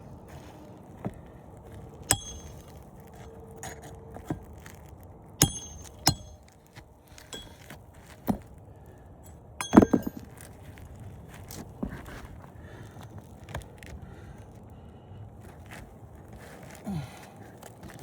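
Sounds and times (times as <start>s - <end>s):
hammer striking roofing nails: 2.1s - 2.7s, 5.4s - 6.4s, 9.6s - 10.3s.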